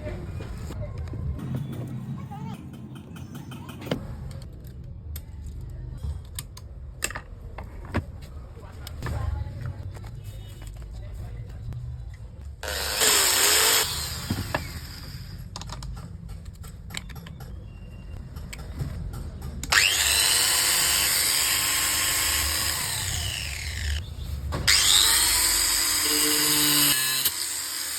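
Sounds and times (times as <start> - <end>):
electric grinder motor whine: 12.6 - 15.2, 19.7 - 24.0, 24.7 - 27.9.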